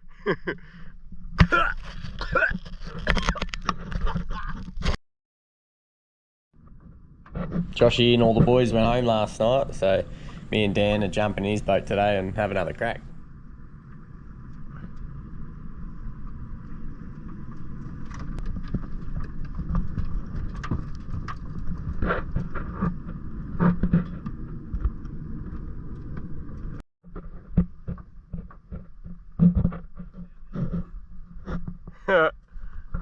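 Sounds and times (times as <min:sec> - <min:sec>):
vehicle driving rumble: 0:06.6 - 0:26.8.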